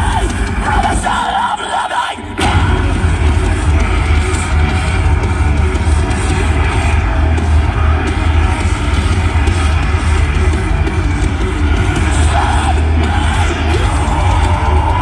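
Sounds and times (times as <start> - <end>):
distorted electric guitars: 0.0 - 15.0
heavy metal band playing live: 0.0 - 15.0.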